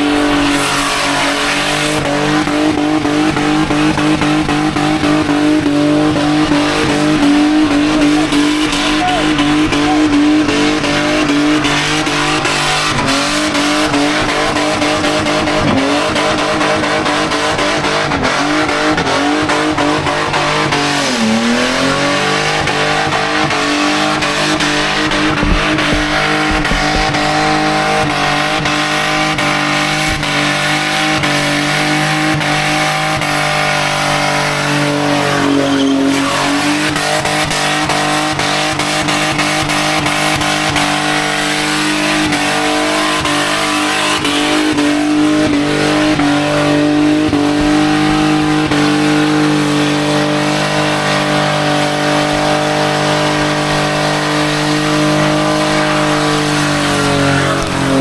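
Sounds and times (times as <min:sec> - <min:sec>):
engine at high revs: 0:00.0 - 0:58.0
tyres squealing: 0:00.1 - 0:16.3.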